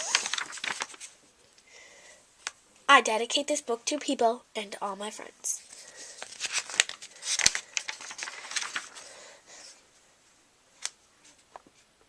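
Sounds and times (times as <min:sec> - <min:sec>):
paper rustling: 0:00.0 - 0:01.6, 0:05.6 - 0:09.8.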